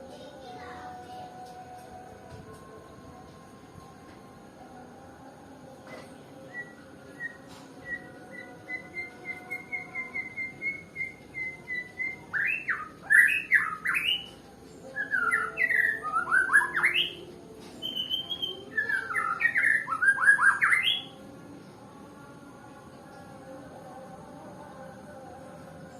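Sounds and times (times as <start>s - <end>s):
bird singing whistled phrases: 6.5s - 17.2s, 17.8s - 21.1s.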